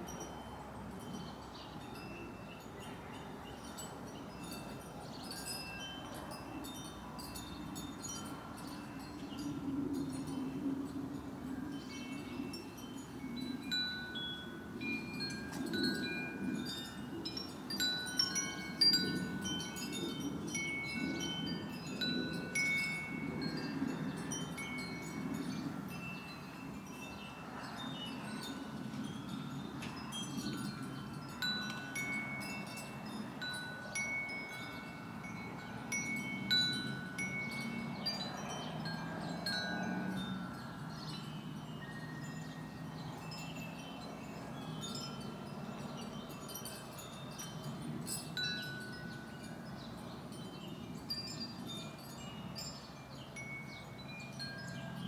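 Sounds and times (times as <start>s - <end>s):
wind chimes ringing: 0.0s - 55.0s.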